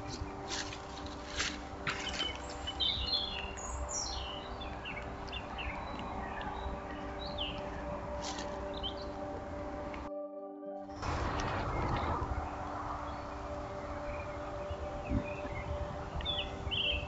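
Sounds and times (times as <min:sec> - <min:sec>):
birds chirping and calling: 0:01.9 - 0:09.3, 0:11.6 - 0:17.0.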